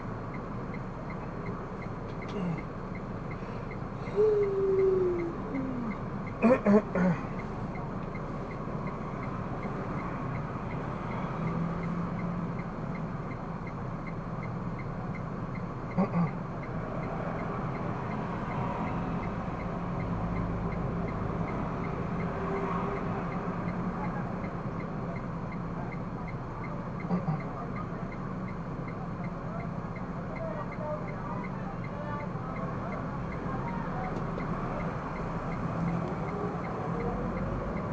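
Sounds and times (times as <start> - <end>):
car engine and road noise: 0.0 - 37.9
faint regular ticking: 0.2 - 4.6, 7.2 - 18.2.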